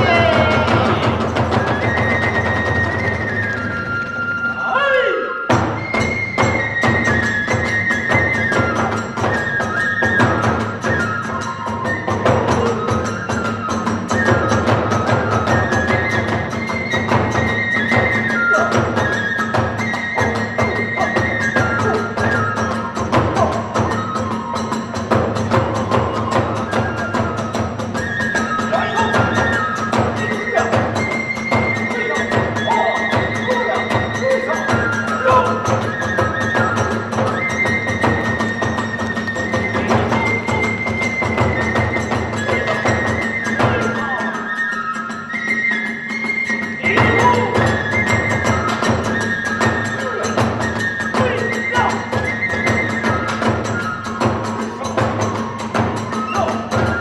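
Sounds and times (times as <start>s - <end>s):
drum beat: 0.0s - 3.1s, 36.6s - 44.2s, 46.8s - 49.2s
drums: 0.0s - 57.0s
flute bending high notes: 0.0s - 57.0s.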